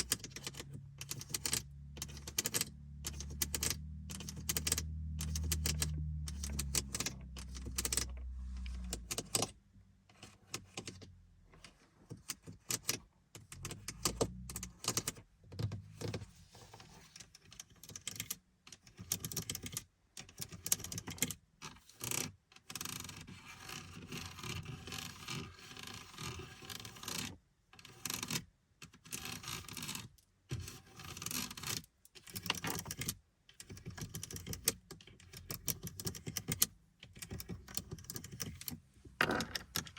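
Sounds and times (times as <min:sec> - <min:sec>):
low rumble: 0:03.0 - 0:09.7.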